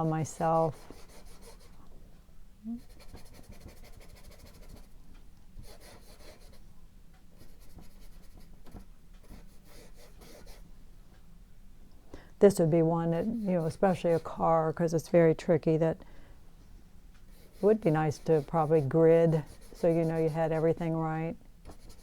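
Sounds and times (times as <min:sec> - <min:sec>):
paintbrush scratching on canvas: 0:00.3 - 0:01.8, 0:17.3 - 0:21.0, 0:21.7 - 0:22.0.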